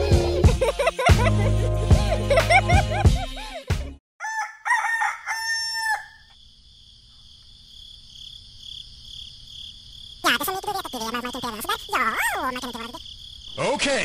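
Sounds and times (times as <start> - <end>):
rooster crowing: 4.2 - 6.3
crickets chirring: 5.0 - 14.0.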